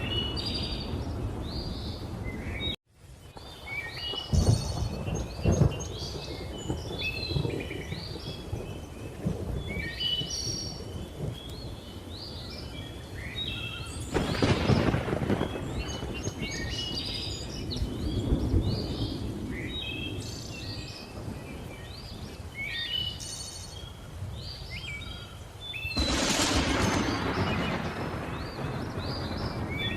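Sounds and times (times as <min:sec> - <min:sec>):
thunder rumbling and cracking: 0:03.4 - 0:13.3, 0:14.0 - 0:22.3, 0:26.0 - 0:29.9.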